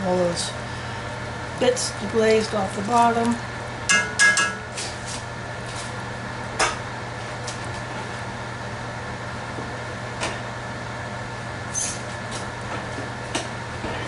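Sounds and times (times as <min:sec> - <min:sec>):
utensil knocking against pot: 0:03.9 - 0:04.6.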